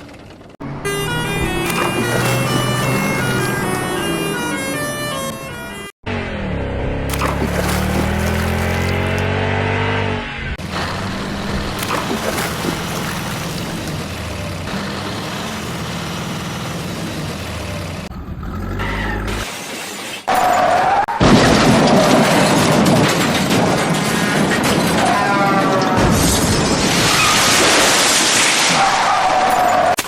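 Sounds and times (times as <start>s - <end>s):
loud crash with shattering: 21.2s - 25.0s.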